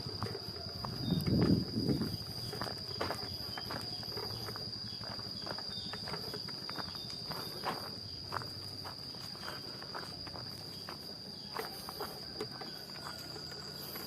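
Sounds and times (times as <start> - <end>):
footsteps on a path: 0.0 - 14.0
high-pitched insect drone: 0.0 - 14.0.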